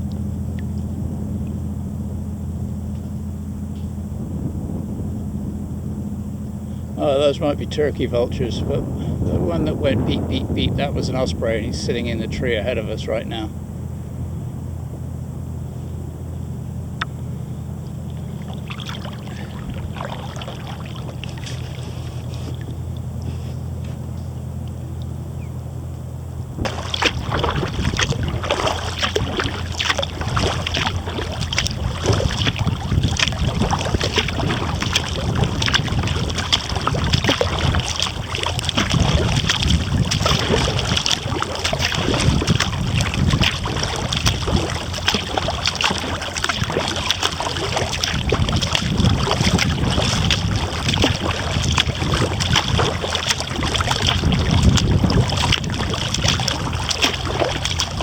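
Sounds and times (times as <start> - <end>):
wind on microphone: 0.0 - 16.2, 16.9 - 24.3, 26.4 - 58.0
paddle splashing and dripping: 17.0 - 58.0.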